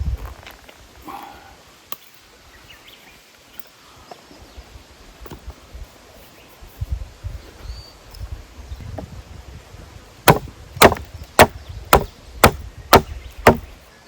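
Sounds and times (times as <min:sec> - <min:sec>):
dull thuds: 0:10.3 - 0:13.8.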